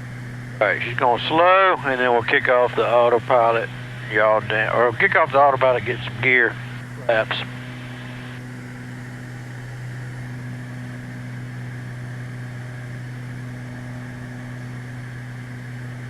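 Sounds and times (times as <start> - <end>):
airplane cabin engine drone: 0.0 - 16.0.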